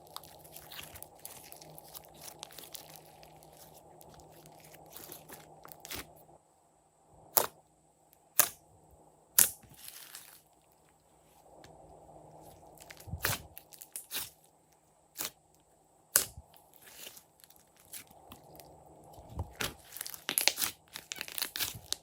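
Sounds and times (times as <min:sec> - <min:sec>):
slime squishing and crackling: 0:00.0 - 0:06.2, 0:09.4 - 0:10.5, 0:12.7 - 0:14.4, 0:16.2 - 0:22.0.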